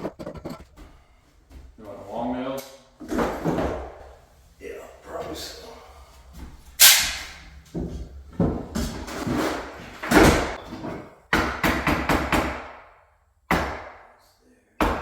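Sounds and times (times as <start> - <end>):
knocking and scraping: 0.0 - 1.6, 6.3 - 11.1
hammer banging: 6.8 - 14.1.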